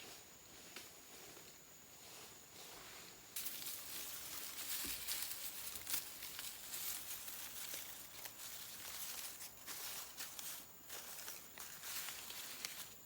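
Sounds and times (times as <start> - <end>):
rustling and crackling: 2.7 - 13.0.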